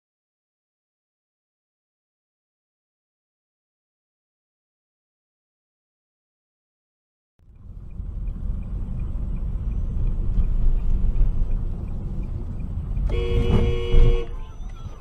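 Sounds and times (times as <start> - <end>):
car road and engine rumble: 7.4 - 15.0
car horn: 13.0 - 15.0.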